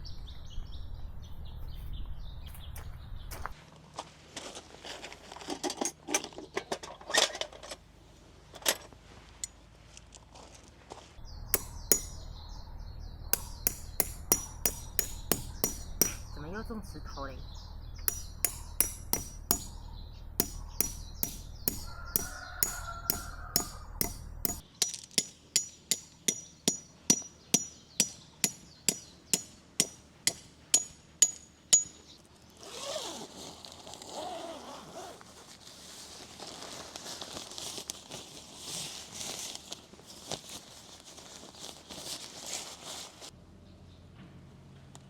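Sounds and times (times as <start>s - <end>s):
rustling and scraping: 1.5s - 16.9s, 32.6s - 43.4s
hammer striking metal tent pegs: 11.4s - 12.5s, 13.3s - 17.2s, 17.9s - 32.2s.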